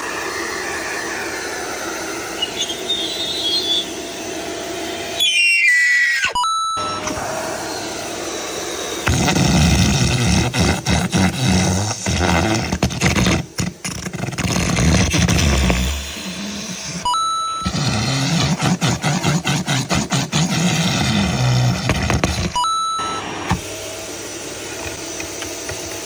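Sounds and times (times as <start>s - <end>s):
vacuum cleaner running: 0.0s - 26.0s
short beep: 17.1s - 17.8s.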